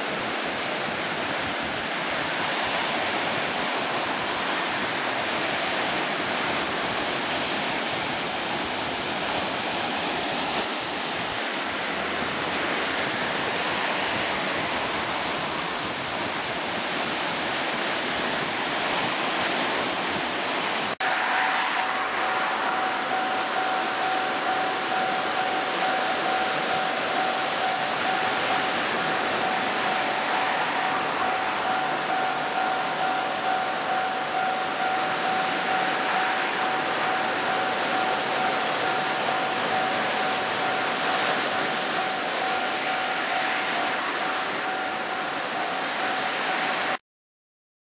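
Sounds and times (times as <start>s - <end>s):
surf rushing: 0.0s - 47.0s
wind noise: 0.0s - 47.0s
steady high hum: 20.9s - 47.0s.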